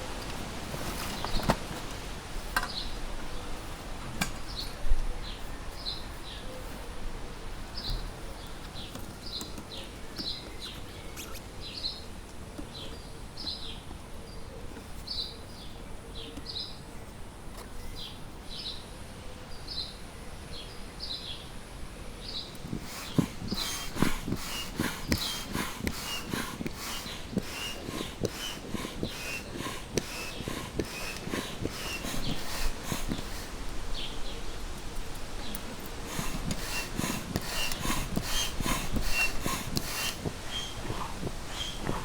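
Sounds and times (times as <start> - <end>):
small bird chirping: 7.8 - 17.1
sharp clicks: 22.5 - 33.7, 35.1 - 42.0.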